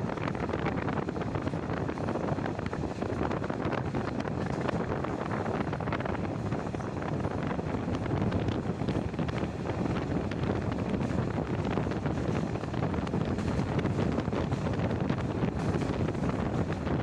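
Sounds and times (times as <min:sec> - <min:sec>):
train rumbling on track: 0:00.0 - 0:17.0
wind buffeting microphone: 0:00.0 - 0:17.0.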